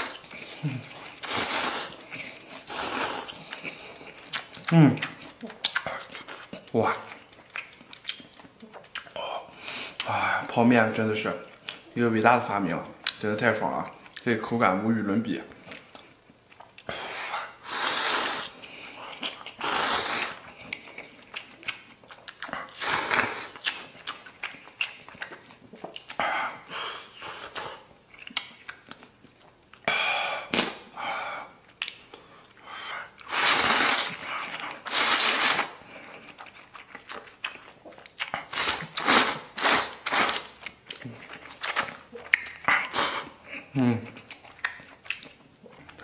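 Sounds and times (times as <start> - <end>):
person slurping noodles: 0.0 - 3.5, 16.9 - 18.6, 19.5 - 20.5, 22.7 - 23.6, 33.2 - 35.8
chewing: 0.0 - 14.3, 15.5 - 29.9, 31.6 - 46.0
wet mouth clicks: 30.5 - 30.9, 41.6 - 46.0.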